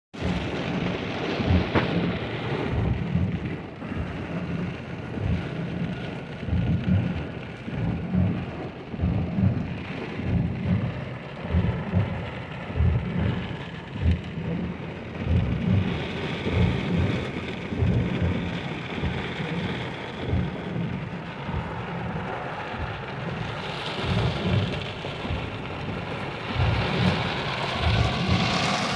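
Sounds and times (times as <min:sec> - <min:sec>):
low rumble: 0:00.2 - 0:28.9
rain hissing: 0:11.0 - 0:28.9.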